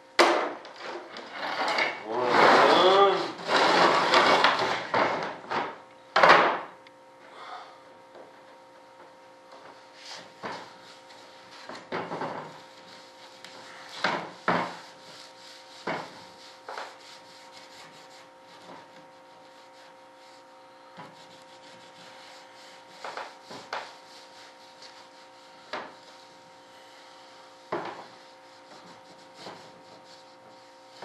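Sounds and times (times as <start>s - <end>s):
steady background hum: 0.0s - 31.0s
tools knocking and scraping: 0.2s - 2.8s, 11.6s - 12.6s, 14.0s - 14.8s.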